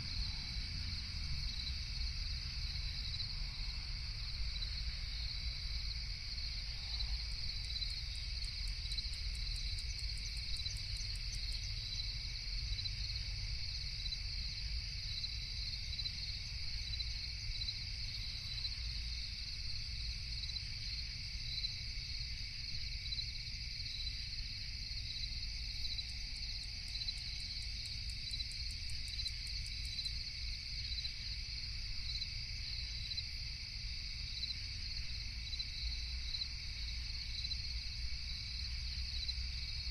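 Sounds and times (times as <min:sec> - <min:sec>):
crickets chirping: 0:00.0 - 0:39.9
low steady rumble: 0:00.0 - 0:39.9
insect ticking trill: 0:06.5 - 0:19.2, 0:24.9 - 0:31.4.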